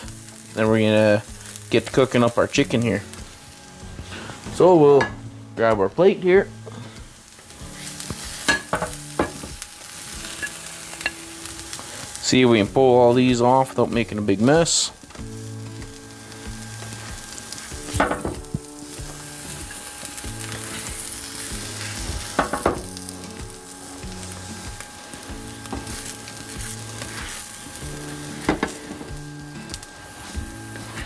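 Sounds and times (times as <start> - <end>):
vegetables sizzling on griddle: 0.0 - 31.0
spatula scraping griddle: 0.6 - 5.2, 6.6 - 31.0.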